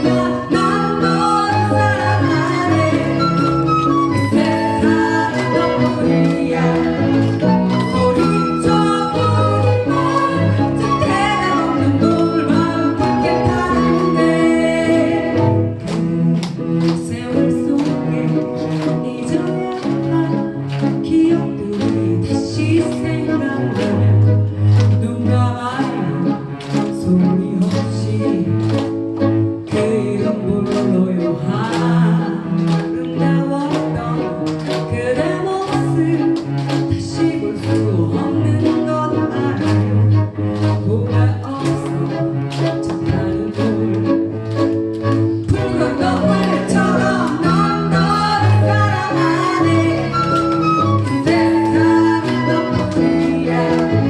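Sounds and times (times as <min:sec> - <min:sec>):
person singing: 0:00.0 - 0:24.2, 0:29.6 - 0:40.2, 0:40.8 - 0:44.3, 0:45.5 - 0:54.0
live ensemble music: 0:00.0 - 0:54.0.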